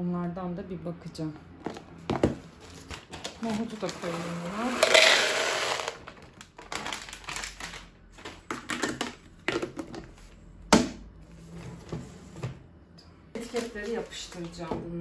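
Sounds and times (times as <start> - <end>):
chickpeas poured into container: 4.6 - 6.0.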